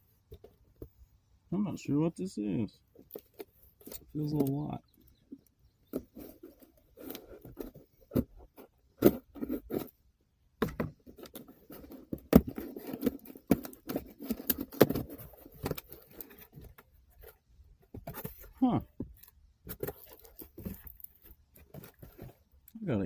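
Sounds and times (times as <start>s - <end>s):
cardboard box rustling and tearing: 5.9s - 10.0s, 10.6s - 22.5s.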